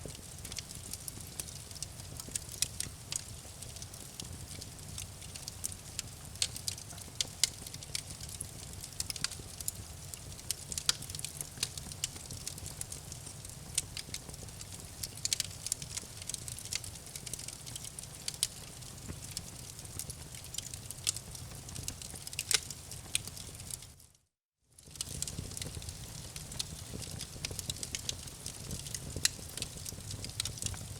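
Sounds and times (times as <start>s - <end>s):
low rumble of fire: 0.0s - 24.0s, 24.8s - 30.9s
campfire pops and snaps: 0.4s - 23.9s, 24.9s - 30.8s.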